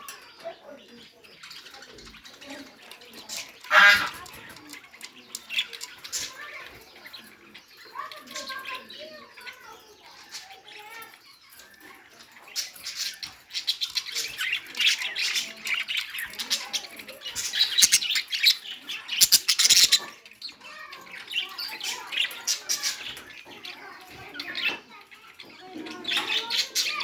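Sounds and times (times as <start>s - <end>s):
bird squawking harshly: 3.7s - 4.2s, 19.2s - 20.1s.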